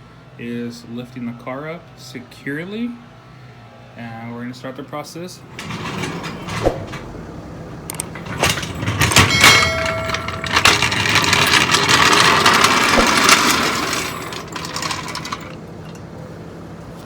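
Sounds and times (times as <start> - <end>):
metallic clang ringing: 7.9 - 16.1.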